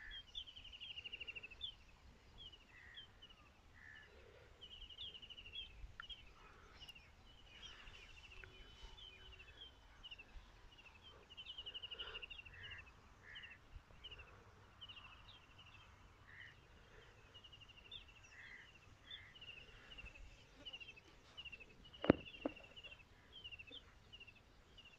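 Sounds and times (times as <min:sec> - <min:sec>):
birds chirping and trilling: 0:00.0 - 0:24.9
sharp knocks: 0:22.0 - 0:22.6.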